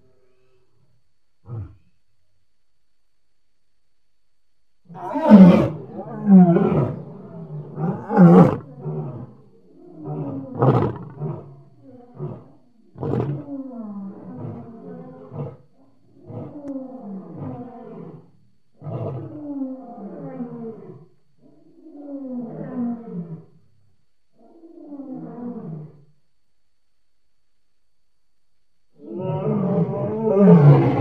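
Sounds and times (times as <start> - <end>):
lion roaring: 4.9 - 23.6, 29.0 - 31.0.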